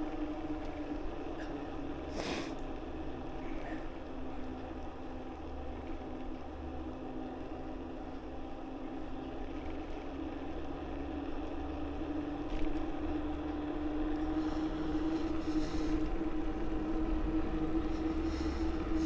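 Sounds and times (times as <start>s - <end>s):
steady hum: 13.6s - 19.0s.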